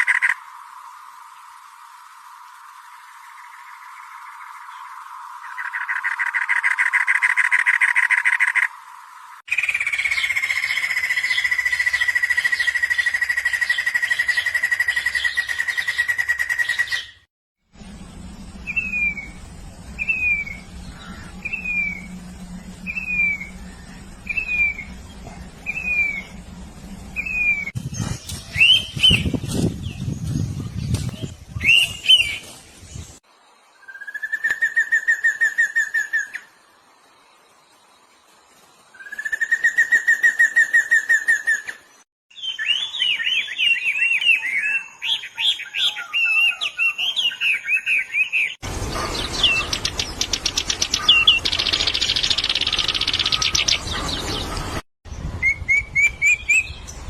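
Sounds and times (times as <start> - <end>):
low hum: 17.7 - 33.2
bird trilling: 18.6 - 27.8, 44.8 - 54.8
harsh bird calls: 18.6 - 32.5, 42.3 - 54.8.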